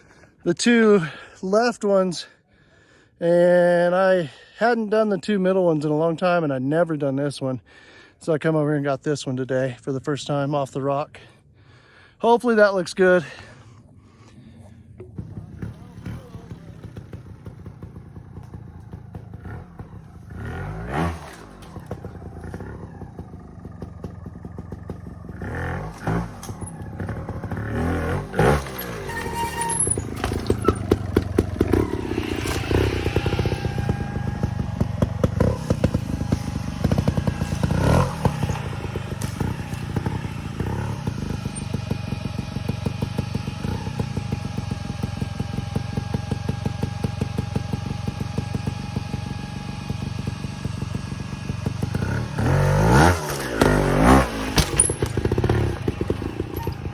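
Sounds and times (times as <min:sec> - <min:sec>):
motorcycle engine revving: 0:14.3 - 0:56.9.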